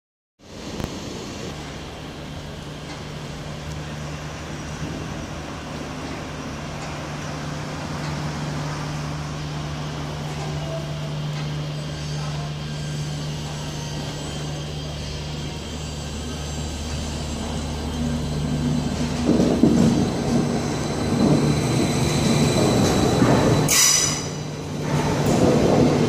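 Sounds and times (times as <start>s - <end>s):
electric train humming: 0.5s - 26.0s.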